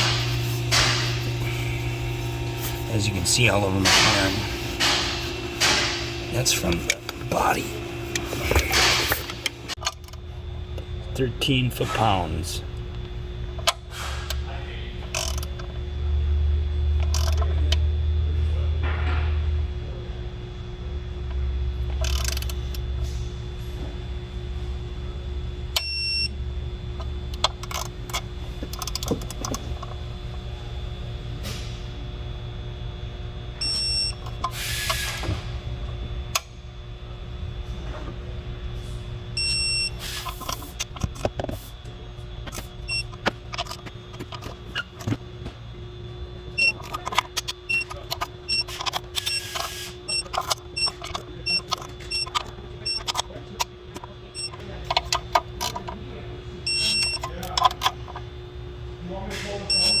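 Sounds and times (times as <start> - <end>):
steady background hum: 0.0 - 60.0.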